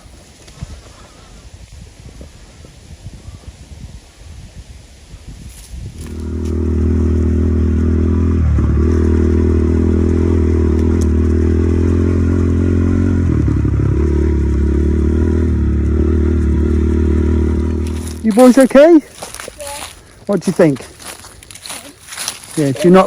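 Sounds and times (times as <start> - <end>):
small motorbike engine running: 6.0 - 18.7.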